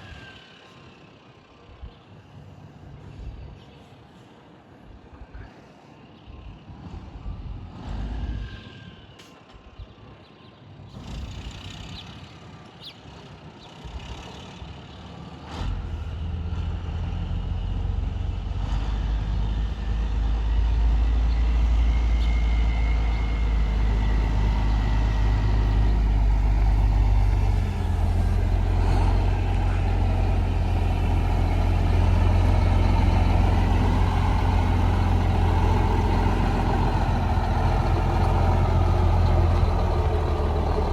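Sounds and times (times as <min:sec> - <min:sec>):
diesel engine droning: 0:10.9 - 0:40.9
diesel truck engine starting: 0:15.2 - 0:40.9.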